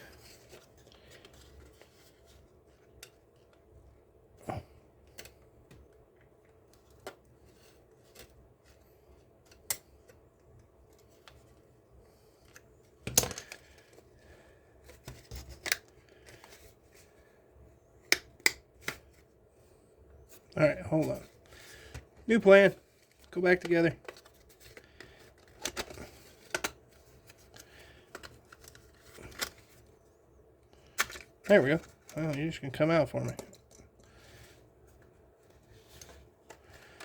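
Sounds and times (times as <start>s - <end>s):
plastic parts clicking and snapping: 12.4s - 14.0s, 14.8s - 16.7s, 18.0s - 19.0s, 23.0s - 29.9s, 30.7s - 32.3s, 33.2s - 34.6s.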